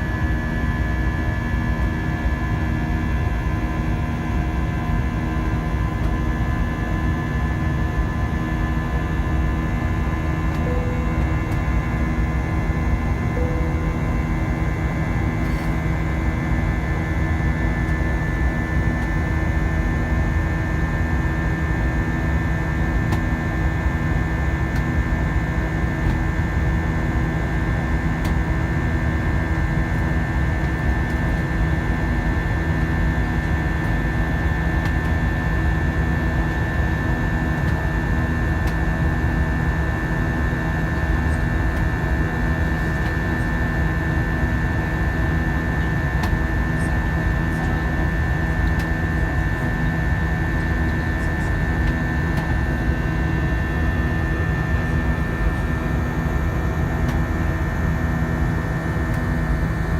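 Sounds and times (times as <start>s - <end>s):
jet engine and airflow drone: 0.0s - 59.9s
low pulsing tone: 10.5s - 16.3s.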